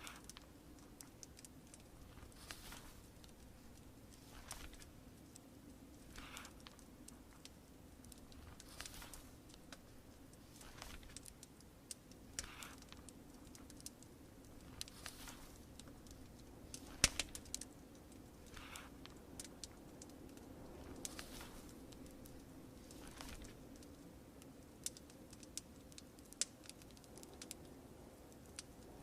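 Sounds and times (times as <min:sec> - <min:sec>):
fireplace crackling and popping: 0:00.0 - 0:29.0
muffled rain: 0:00.0 - 0:29.0
book pages turning: 0:02.0 - 0:04.9, 0:08.4 - 0:09.8, 0:10.5 - 0:11.4, 0:14.6 - 0:16.0, 0:20.8 - 0:22.3, 0:22.9 - 0:23.6.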